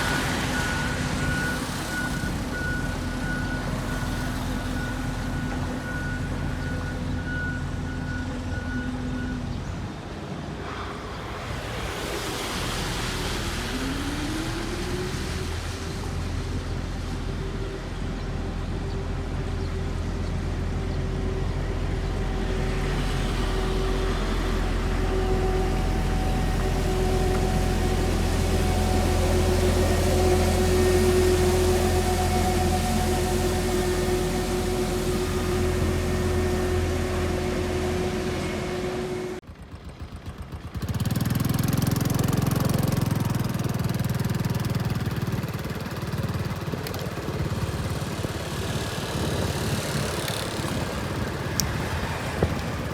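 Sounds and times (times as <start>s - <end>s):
heavy construction machinery running: 0.0s - 52.9s
faint high steady tone: 21.0s - 39.4s
engine revving up: 21.6s - 39.4s.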